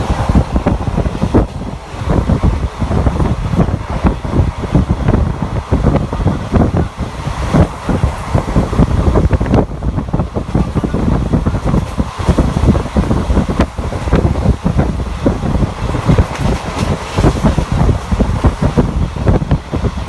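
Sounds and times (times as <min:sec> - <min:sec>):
passenger train running: 0:00.0 - 0:20.0
wind buffeting microphone: 0:00.0 - 0:20.0
clatter of knocks and rattles: 0:10.5 - 0:18.9.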